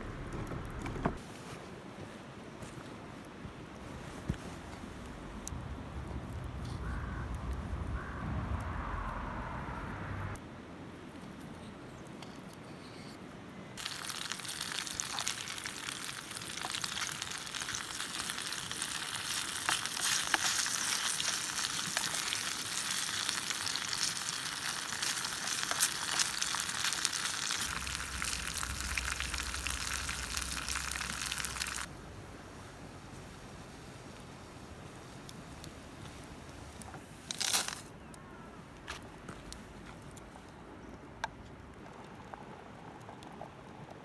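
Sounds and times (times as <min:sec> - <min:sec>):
low rumble: 0:05.0 - 0:10.4, 0:27.7 - 0:33.1
food sizzling in hot oil: 0:13.8 - 0:31.9.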